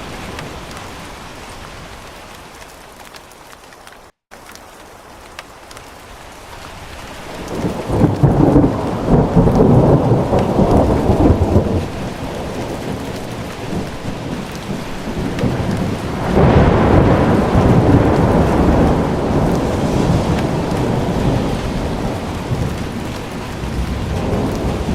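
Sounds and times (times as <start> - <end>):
steady rain: 0.0 - 24.9
rolling thunder: 7.4 - 24.9.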